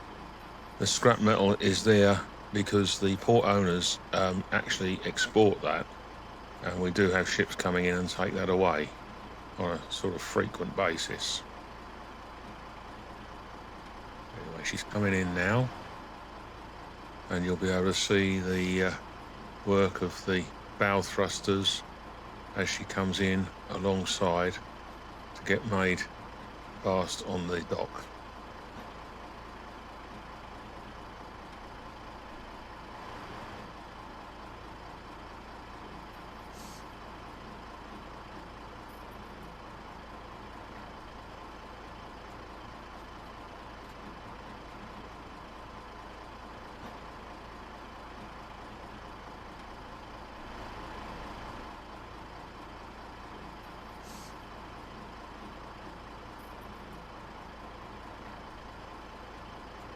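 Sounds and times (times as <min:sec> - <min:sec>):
heavy machinery drone: 0:00.6 - 0:11.5
short hisses: 0:54.0 - 0:54.4.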